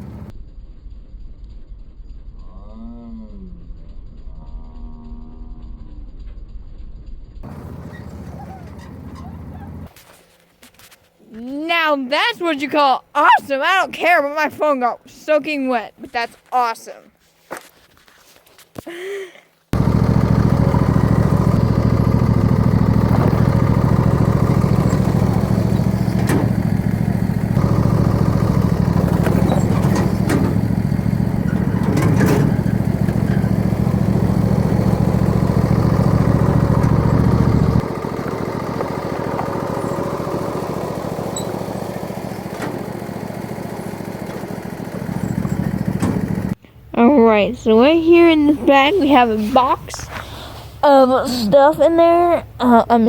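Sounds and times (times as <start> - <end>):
lawn tractor engine running: 0.0 - 0.3, 7.4 - 10.4, 19.8 - 46.6.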